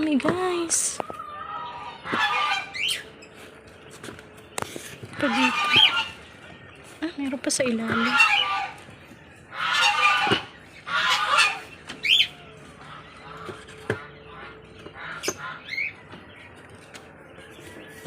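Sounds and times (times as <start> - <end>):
hen squawking: 1.2 - 3.2, 5.1 - 6.2, 7.6 - 16.0.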